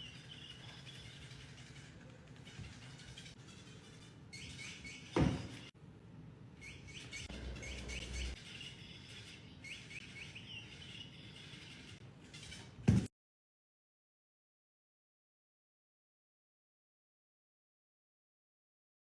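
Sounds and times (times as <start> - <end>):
bird-like chirping: 0.0 - 5.7, 6.6 - 12.8.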